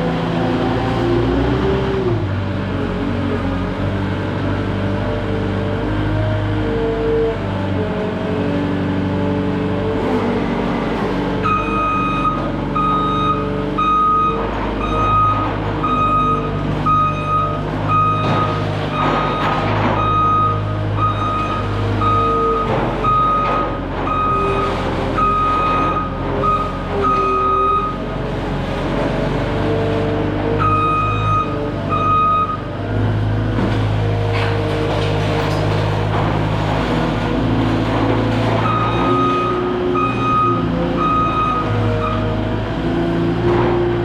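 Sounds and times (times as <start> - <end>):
diesel engine running: 0.0 - 44.0
reverse alarm beeping: 11.4 - 24.6, 30.6 - 32.6, 38.7 - 42.2.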